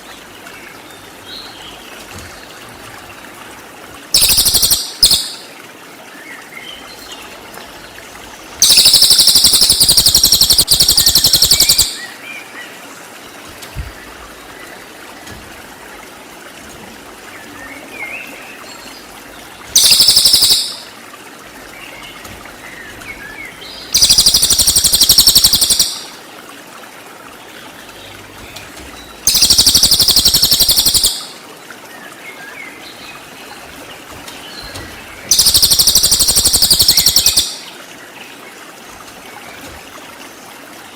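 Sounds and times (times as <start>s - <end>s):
low trickling hiss: 0.0s - 40.9s
faint bird chirps: 4.2s - 5.4s, 8.6s - 12.1s, 19.8s - 20.9s, 23.9s - 26.1s, 29.3s - 31.4s, 34.6s - 37.7s
songbird high-pitched trills: 4.2s - 5.4s, 8.6s - 12.1s, 19.8s - 20.9s, 23.9s - 26.1s, 29.2s - 31.4s, 35.3s - 37.7s.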